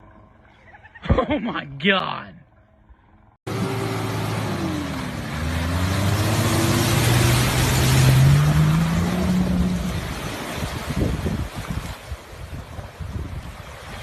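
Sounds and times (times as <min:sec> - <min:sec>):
vehicle engine revving: 0:03.5 - 0:11.2.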